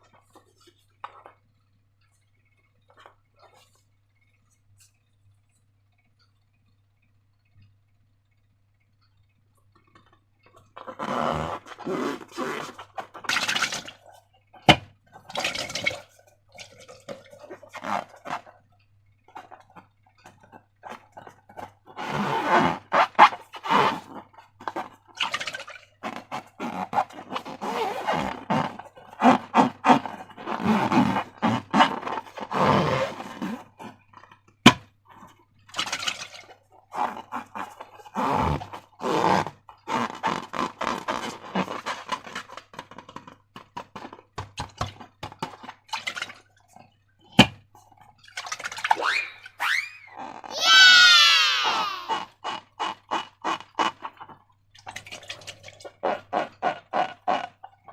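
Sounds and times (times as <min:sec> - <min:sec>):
rubber balloon squealing: 0:10.9 - 0:13.5, 0:22.0 - 0:24.9, 0:26.0 - 0:33.9, 0:36.9 - 0:42.5, 0:48.9 - 0:54.2.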